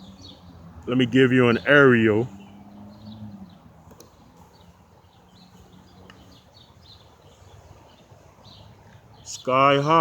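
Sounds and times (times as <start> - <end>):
faint birds chirping: 0.0 - 10.0
outdoor background noise: 0.0 - 10.0.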